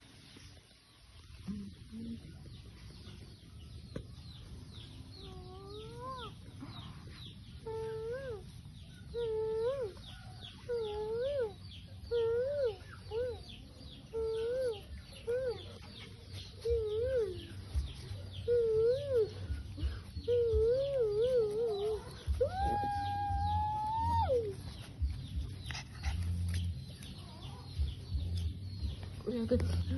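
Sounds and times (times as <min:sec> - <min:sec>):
dog whining: 0:05.1 - 0:28.1.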